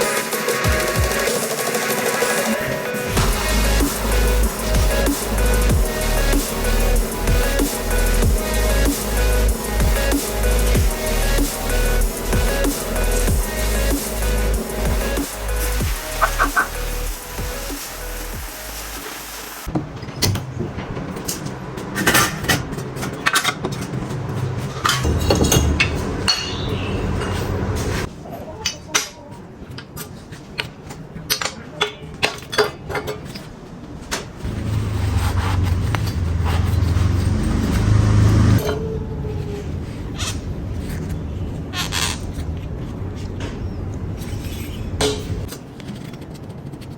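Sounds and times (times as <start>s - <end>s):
tools clinking on metal: 24.8s - 27.5s.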